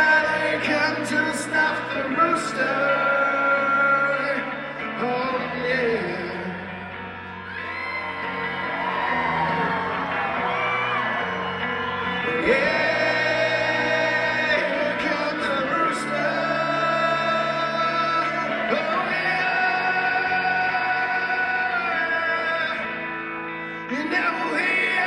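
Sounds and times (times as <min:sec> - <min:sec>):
man singing: 0:00.0 - 0:06.9, 0:12.2 - 0:25.0
electric guitars: 0:00.0 - 0:25.0
crowd shouting: 0:06.3 - 0:23.1.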